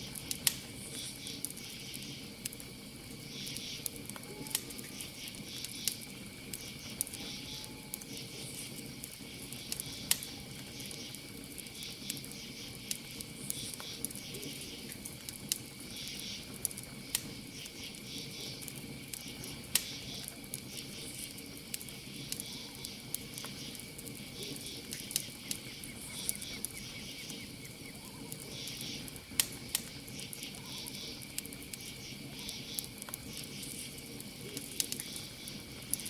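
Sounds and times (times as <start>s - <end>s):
campfire crackling and popping: 0.0s - 36.0s
cricket trill: 0.0s - 36.0s.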